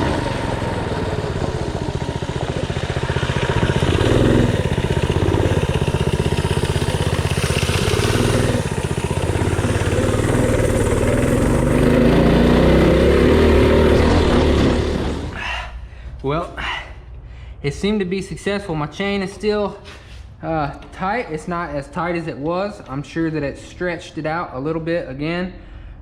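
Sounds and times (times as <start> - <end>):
mini bike engine running: 0.0 - 15.4.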